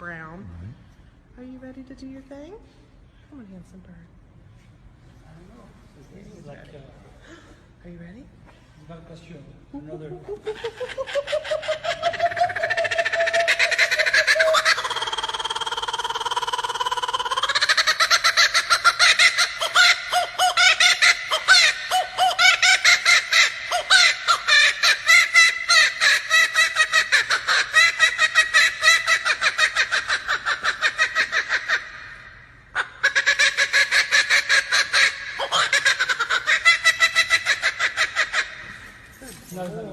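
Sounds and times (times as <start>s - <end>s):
kookaburra cackling call: 10.6s - 32.2s, 32.8s - 38.8s.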